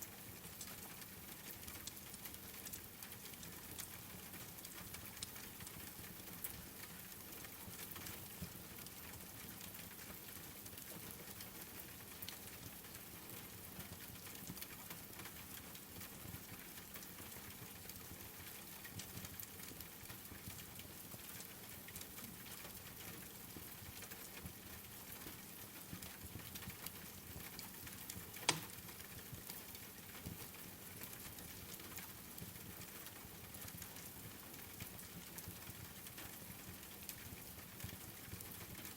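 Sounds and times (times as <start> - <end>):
steady rain: 0.0 - 38.9
wood fire crackling: 26.6 - 29.8
loud fire pop: 28.4 - 28.8.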